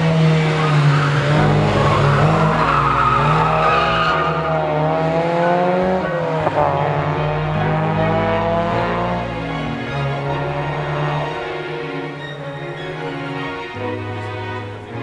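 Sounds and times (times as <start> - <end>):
tyres squealing: 0.0 - 4.5, 9.3 - 15.0
car engine drone: 0.0 - 15.0.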